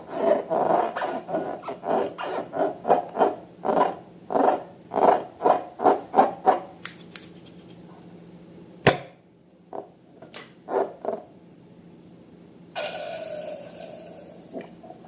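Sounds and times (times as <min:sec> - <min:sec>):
sharp click: 0:06.8 - 0:07.3.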